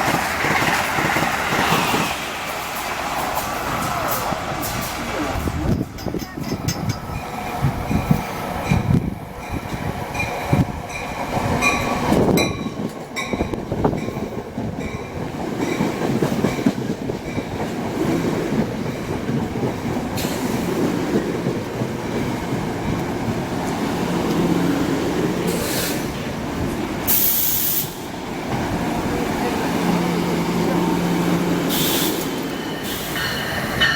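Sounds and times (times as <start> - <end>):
train rolling rumble: 0.0 - 33.9
train wheels clacking on rail joints: 0.0 - 33.9
high hiss: 31.6 - 33.8.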